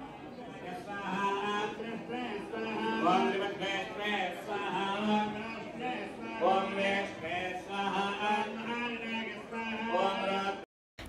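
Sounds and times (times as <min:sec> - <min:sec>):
person chanting: 0:00.4 - 0:10.7.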